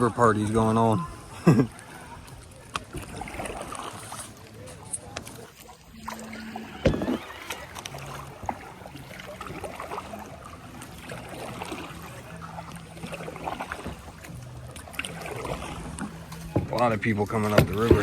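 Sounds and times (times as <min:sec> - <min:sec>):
water splashing around kayak: 0:00.0 - 0:18.0
knocks on kayak: 0:17.4 - 0:18.0.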